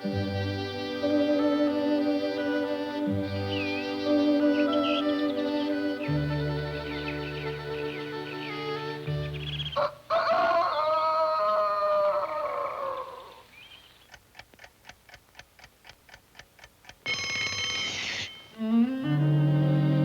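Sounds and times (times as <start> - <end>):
music cue: 0.0 - 9.9, 17.1 - 20.0
clock ticking: 14.0 - 18.8
alarm clock bell ringing: 17.0 - 18.7.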